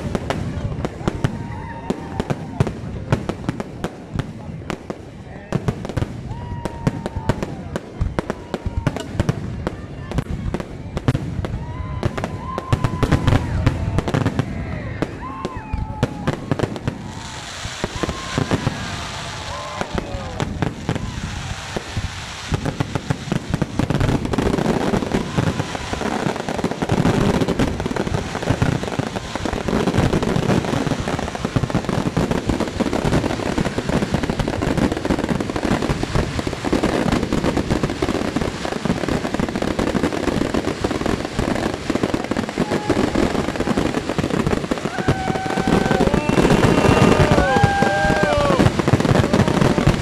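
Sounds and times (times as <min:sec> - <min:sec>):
fireworks bangs: 0:00.0 - 0:50.0.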